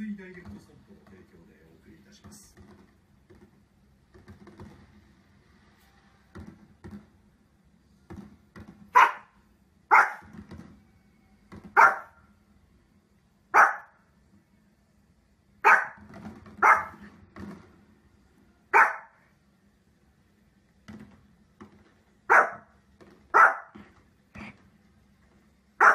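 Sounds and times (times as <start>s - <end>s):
small dog barking: 8.9s - 10.3s, 11.8s - 12.2s, 13.5s - 14.0s, 15.6s - 16.0s, 16.6s - 17.0s, 18.7s - 19.2s, 22.3s - 22.7s, 23.3s - 23.8s.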